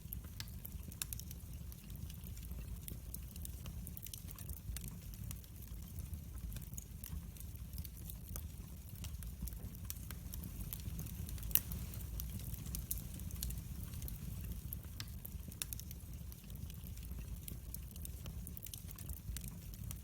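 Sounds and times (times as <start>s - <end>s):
fire crackling in fireplace: 0.0s - 20.0s.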